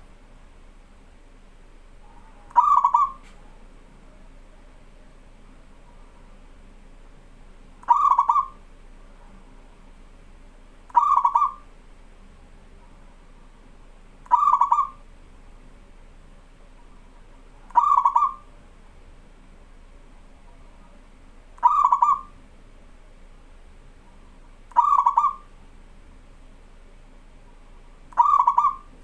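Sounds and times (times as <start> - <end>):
faint steady hum: 0.0 - 29.0
dove cooing: 2.1 - 3.6, 7.8 - 8.7, 10.9 - 11.7, 14.3 - 15.1, 17.6 - 18.5, 21.6 - 22.4, 24.7 - 25.5, 28.1 - 29.0.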